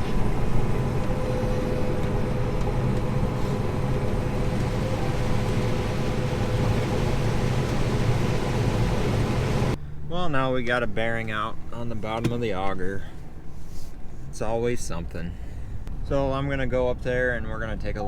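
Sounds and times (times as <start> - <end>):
faint steady whine: 0.0 - 10.6
heavy machinery engine drone: 0.0 - 11.7.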